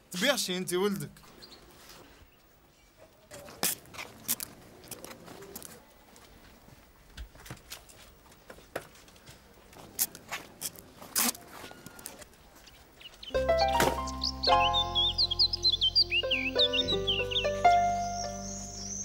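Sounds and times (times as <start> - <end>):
footsteps on pavement: 3.3 - 14.3.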